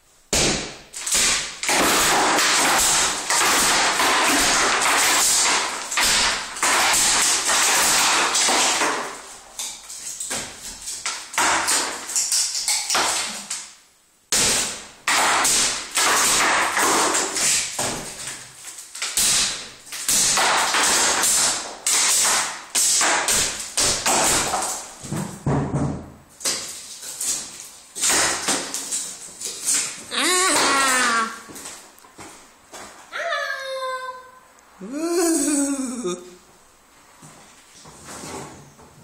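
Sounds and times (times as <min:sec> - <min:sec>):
ceiling crashing and clattering: 0:00.3 - 0:13.6, 0:14.3 - 0:31.5.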